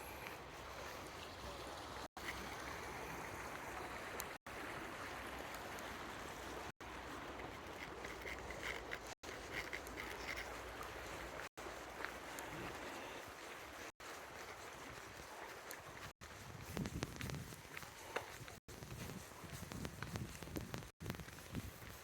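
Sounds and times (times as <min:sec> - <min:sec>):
flowing river water: 0:00.0 - 0:16.6.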